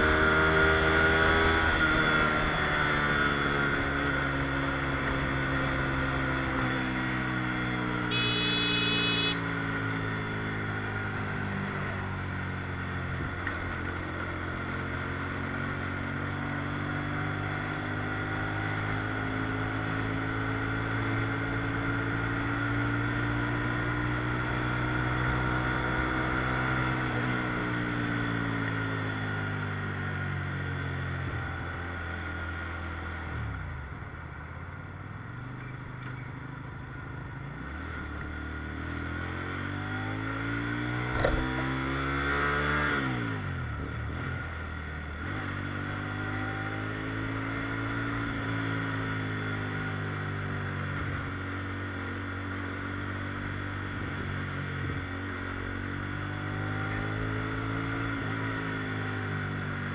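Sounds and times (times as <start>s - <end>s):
motorcycle engine running: 0.0s - 16.2s, 40.9s - 42.1s
road and wind noise: 0.0s - 59.9s.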